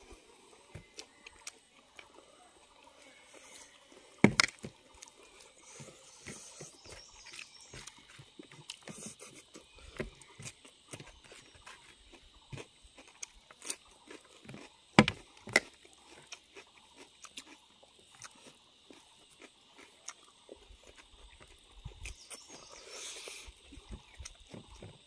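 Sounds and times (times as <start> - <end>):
man chewing and lip smacking: 7.2 - 9.7, 10.6 - 22.6, 23.4 - 24.9.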